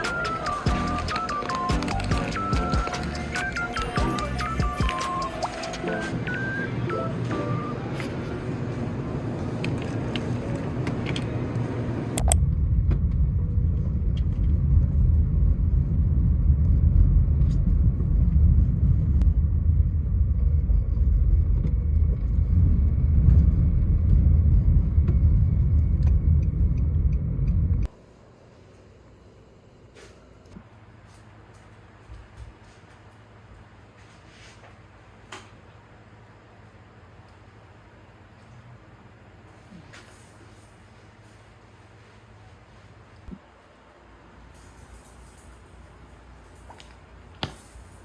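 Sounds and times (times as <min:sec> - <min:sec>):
background music: 0:00.0 - 0:08.4
loud low vehicle rumble: 0:00.0 - 0:27.9.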